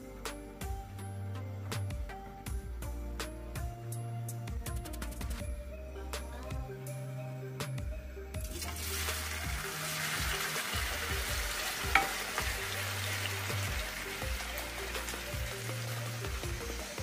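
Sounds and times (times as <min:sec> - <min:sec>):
potatoes sizzling in hot oil: 0:08.5 - 0:17.0
spoon knocking against pan: 0:11.9 - 0:12.5.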